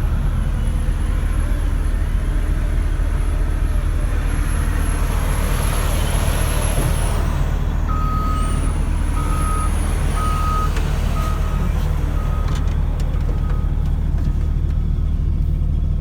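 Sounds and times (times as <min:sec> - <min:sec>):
diesel engine running: 0:00.0 - 0:16.0
reversing alarm beeping: 0:07.9 - 0:12.6.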